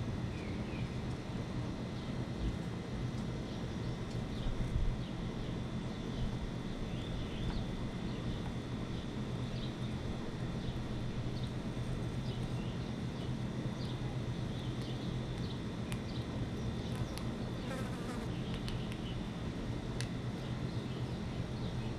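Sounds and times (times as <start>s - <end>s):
low rumbling hum: 0.0s - 21.9s
small birds chirping: 0.3s - 1.1s, 3.4s - 19.4s, 20.4s - 21.9s.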